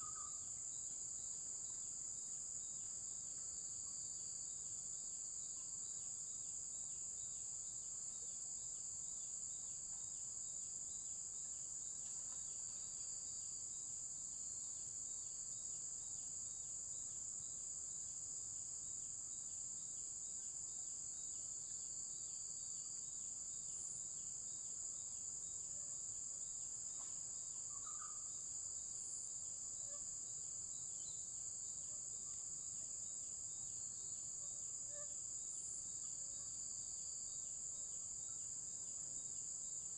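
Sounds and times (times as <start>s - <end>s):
pulsing insect call: 0.0s - 1.8s, 26.5s - 39.8s
insects droning: 0.0s - 39.9s.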